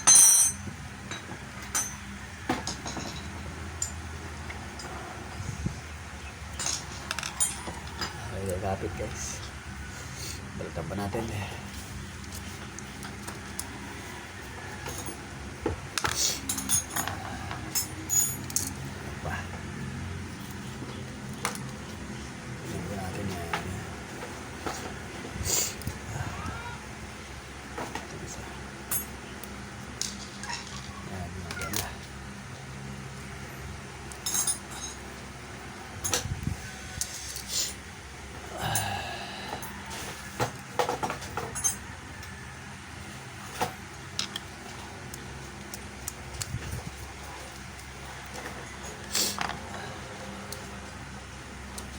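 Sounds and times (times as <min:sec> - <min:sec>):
metal tools clinking and rattling: 0:00.0 - 0:04.1, 0:06.5 - 0:09.5, 0:14.8 - 0:15.3, 0:16.0 - 0:19.5, 0:28.8 - 0:29.4, 0:34.1 - 0:35.2, 0:36.0 - 0:36.3, 0:38.6 - 0:42.4
small hard clicks and clinks: 0:00.0 - 0:04.1, 0:34.1 - 0:35.0
steady low hum: 0:00.0 - 0:51.9.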